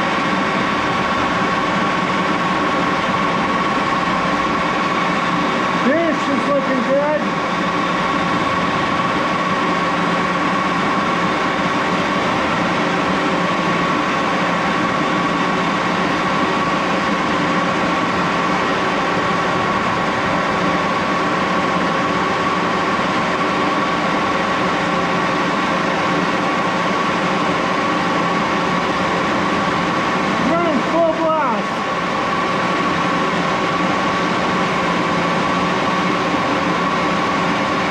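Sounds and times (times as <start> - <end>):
lathe running with high whine: 0.0 - 37.9.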